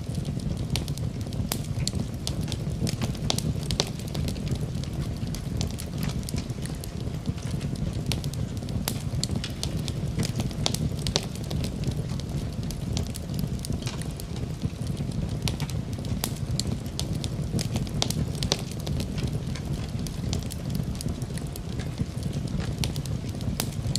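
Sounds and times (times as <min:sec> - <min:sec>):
campfire crackling and popping: 0:00.0 - 0:23.9
fire low rumble: 0:00.0 - 0:23.9.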